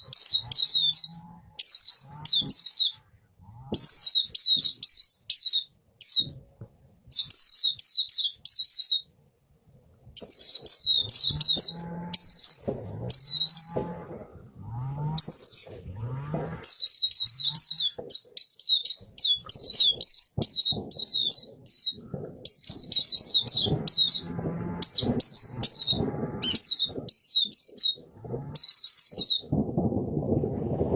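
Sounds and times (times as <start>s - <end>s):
bird high chirping song: 0.0s - 3.0s, 3.8s - 6.4s, 7.1s - 9.1s, 10.2s - 14.0s, 15.1s - 15.9s, 16.6s - 29.5s
faint low gliding sounds: 20.8s - 30.9s.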